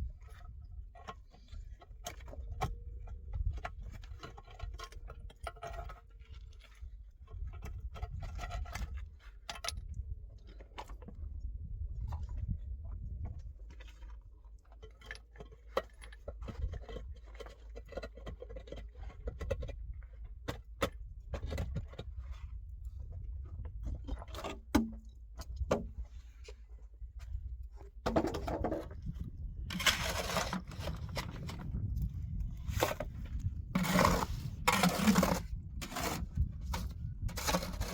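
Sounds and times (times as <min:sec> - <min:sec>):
steady low rumble: 0:29.0 - 0:37.8.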